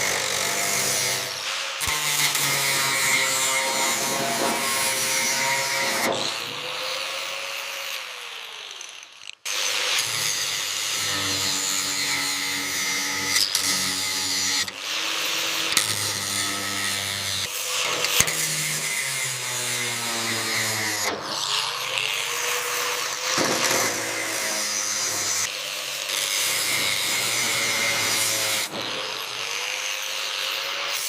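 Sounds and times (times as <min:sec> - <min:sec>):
power tools running: 0:00.0 - 0:31.0.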